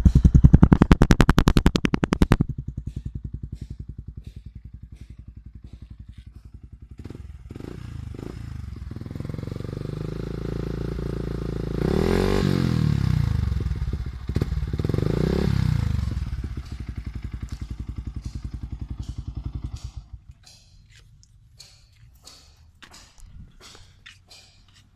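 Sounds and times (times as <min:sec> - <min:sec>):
motorcycle engine idling and revving: 0:00.0 - 0:24.9.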